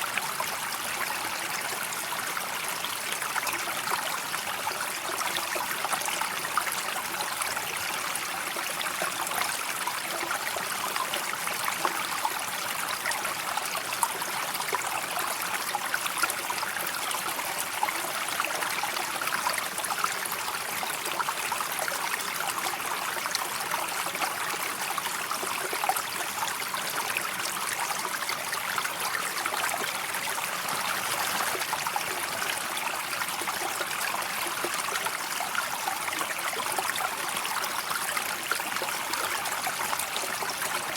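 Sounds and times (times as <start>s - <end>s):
river water rushing: 30.2s - 32.6s.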